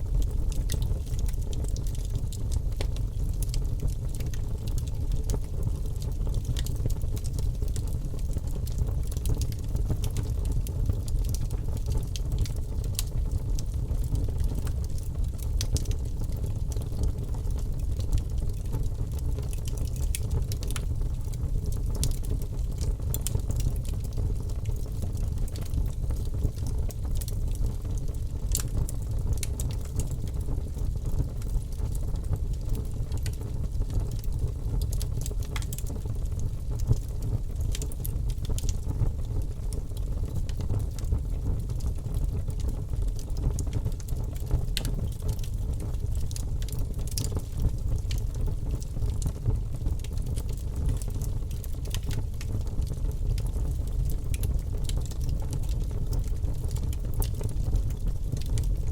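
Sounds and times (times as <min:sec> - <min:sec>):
low fire rumble: 0:00.0 - 0:58.9.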